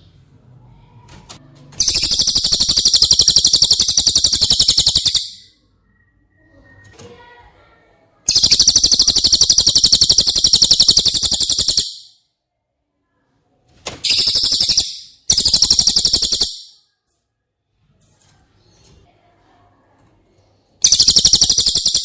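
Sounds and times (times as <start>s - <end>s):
songbird rattling trill: 1.8s - 5.5s, 8.3s - 12.1s, 14.1s - 16.7s, 20.8s - 22.0s.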